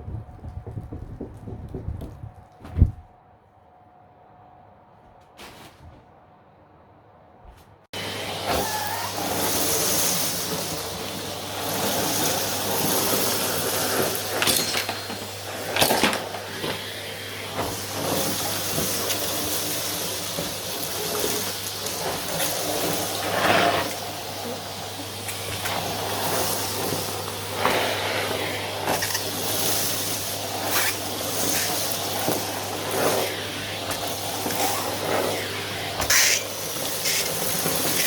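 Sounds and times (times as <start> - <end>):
vacuum cleaner running: 8.0 - 38.0.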